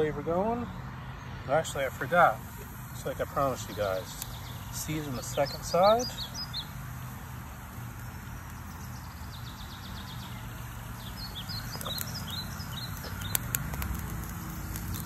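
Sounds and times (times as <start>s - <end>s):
birds chirping: 0.0s - 15.0s
sharp clicks: 11.2s - 15.0s.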